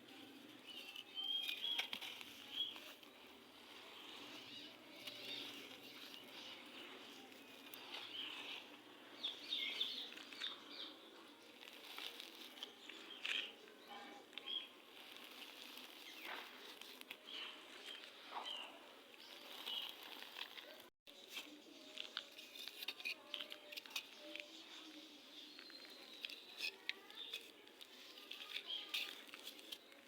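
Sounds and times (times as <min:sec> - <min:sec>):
dry sand crunching: 0:00.1 - 0:23.0.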